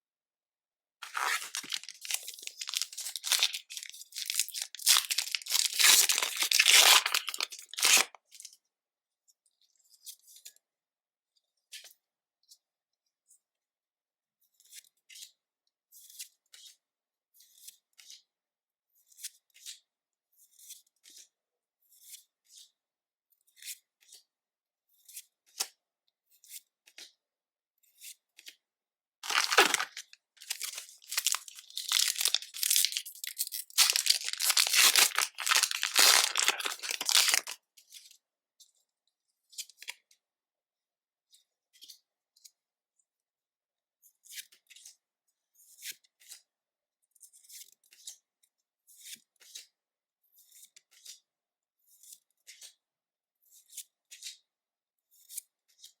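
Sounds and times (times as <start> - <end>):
card pack packaging tearing: 1.0 - 8.1, 29.2 - 37.6.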